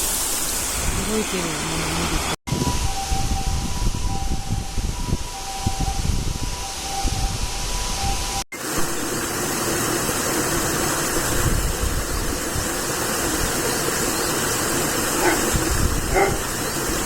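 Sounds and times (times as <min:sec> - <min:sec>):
waterfall rushing: 0:08.6 - 0:17.0.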